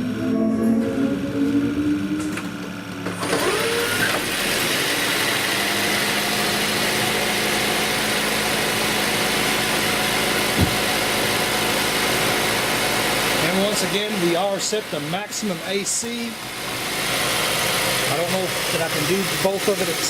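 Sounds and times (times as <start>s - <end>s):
car engine and fan running: 0.0s - 20.0s
short knock: 10.6s - 10.8s.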